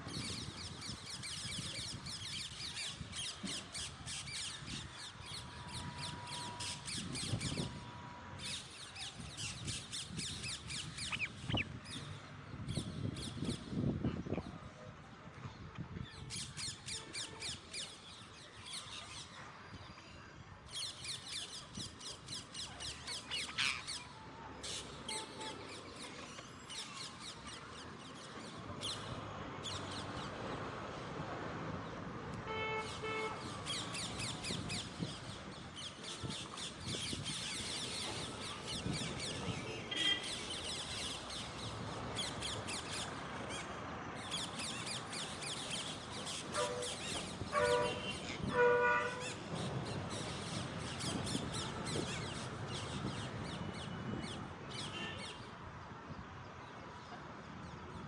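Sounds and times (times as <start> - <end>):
birds chirping: 0.1 - 14.6, 32.5 - 55.6.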